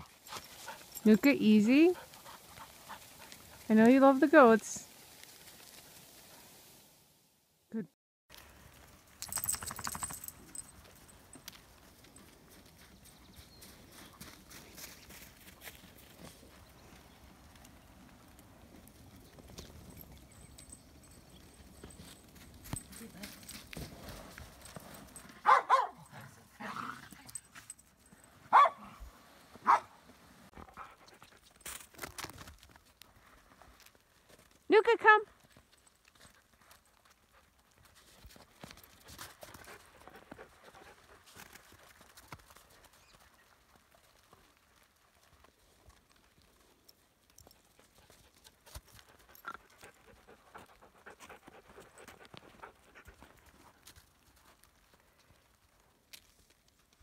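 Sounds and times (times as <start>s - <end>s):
dog panting: 1.9s - 3.7s, 47.7s - 53.7s
footsteps crunching in snow: 11.6s - 17.0s
dog barking: 25.4s - 26.2s, 28.5s - 29.0s, 29.6s - 30.0s.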